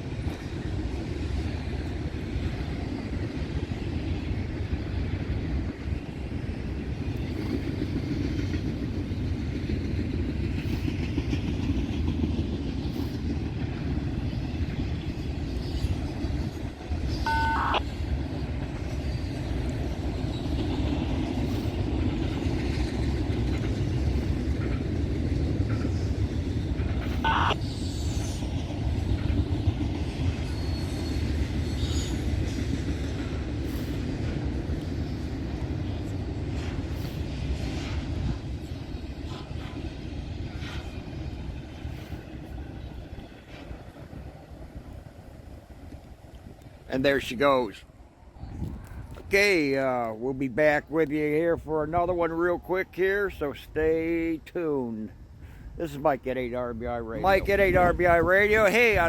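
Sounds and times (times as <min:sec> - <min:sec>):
freight train rumbling past: 0:00.0 - 0:59.0
wind buffeting microphone: 0:00.0 - 0:59.0.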